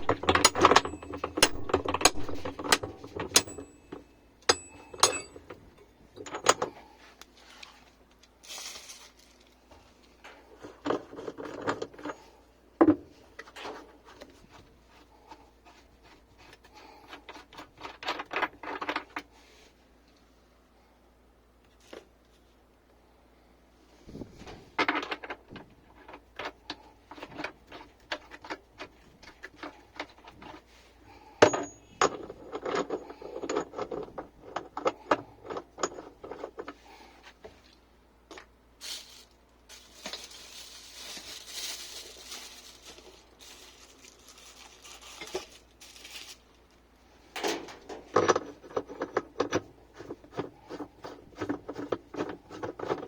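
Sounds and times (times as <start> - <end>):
metal knocks and clinks: 0.0 - 6.8, 31.4 - 36.7, 47.4 - 49.7.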